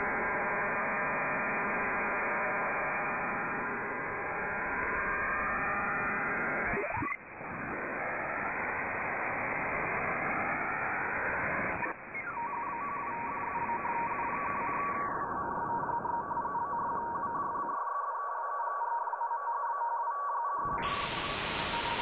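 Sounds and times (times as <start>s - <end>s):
radio static hiss: 20.7s - 22.0s.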